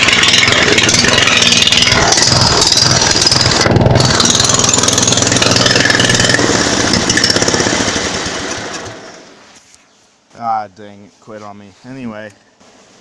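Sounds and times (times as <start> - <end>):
small tractor engine chugging: 0.0 - 9.3.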